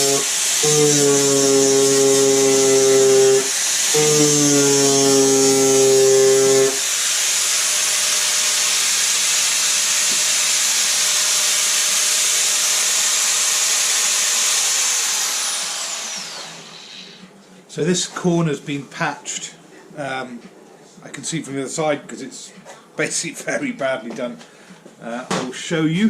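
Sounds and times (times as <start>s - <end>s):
angle grinder grinding steel: 0.0s - 17.2s.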